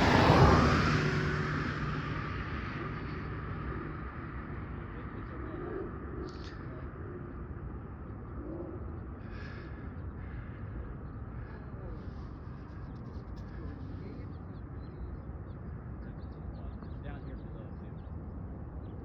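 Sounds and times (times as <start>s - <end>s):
outdoor background rumble: 0.0s - 19.0s
faint bird chirps: 5.2s - 7.0s.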